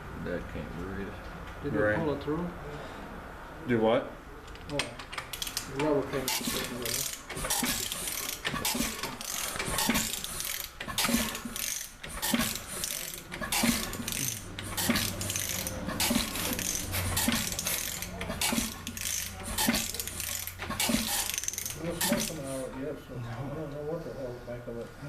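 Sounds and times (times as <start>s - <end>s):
mechanical clatter: 4.6s - 22.8s
engine knocking clack: 6.3s - 22.4s.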